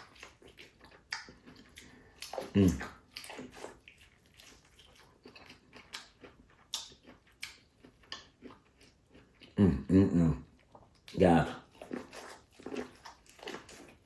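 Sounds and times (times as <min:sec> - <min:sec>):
chewing and mouth smacking: 0:00.0 - 0:09.6, 0:10.4 - 0:14.0
food crunches: 0:00.0 - 0:09.6.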